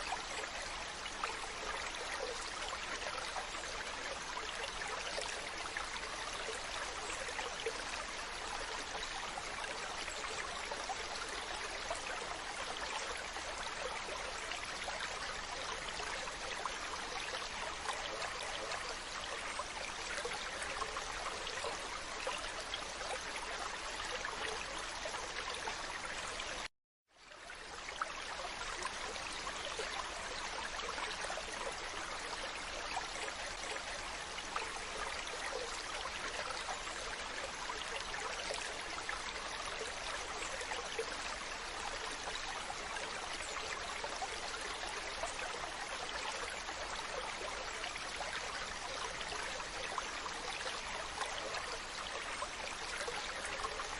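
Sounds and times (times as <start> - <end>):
rushing trickling water: 0.0 - 53.9.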